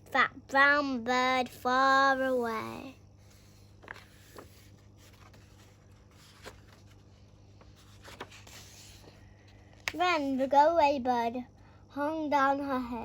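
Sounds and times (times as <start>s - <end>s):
paper rustling: 3.3s - 10.3s
soft taps of book pages: 9.8s - 10.0s.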